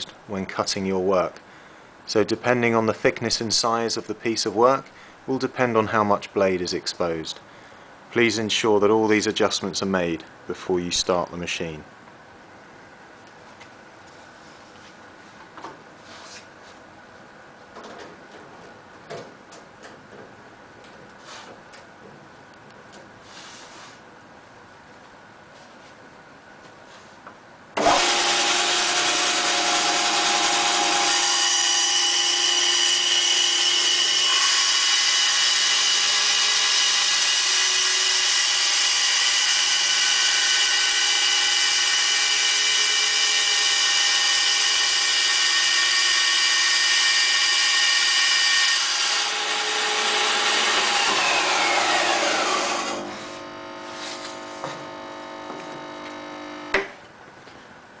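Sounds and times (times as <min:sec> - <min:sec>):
bandsaw cutting wood: 0:27.8 - 0:56.9.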